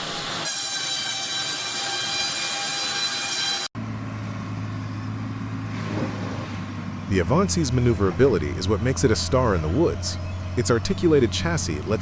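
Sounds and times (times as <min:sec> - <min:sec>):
wood chipper high-pitched whine: 0:00.0 - 0:12.0
engine hum: 0:03.8 - 0:12.0.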